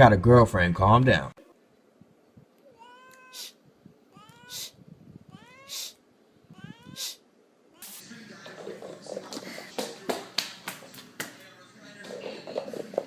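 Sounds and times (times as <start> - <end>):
cat meowing: 2.6 - 8.0
short hissing noise: 3.3 - 3.7, 4.5 - 4.8, 5.6 - 6.0, 6.9 - 8.1.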